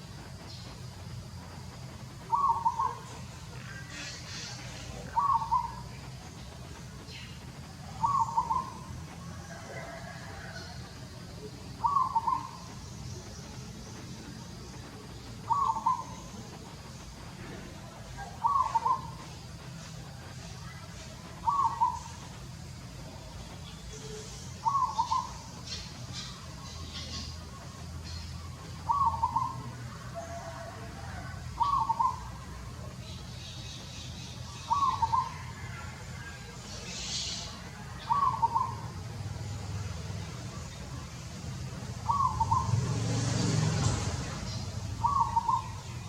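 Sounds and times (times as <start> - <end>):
steady low rumble: 0.0 - 42.9.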